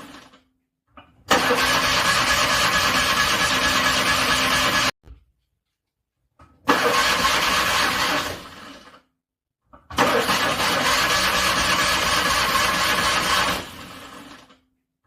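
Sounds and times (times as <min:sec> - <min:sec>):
car engine cranking: 0:01.3 - 0:04.9, 0:06.7 - 0:08.3, 0:10.0 - 0:13.6.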